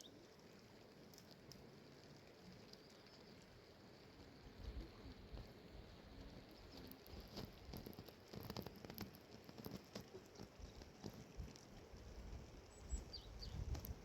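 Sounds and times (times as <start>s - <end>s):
faint irregular tapping: 6.2s - 12.4s.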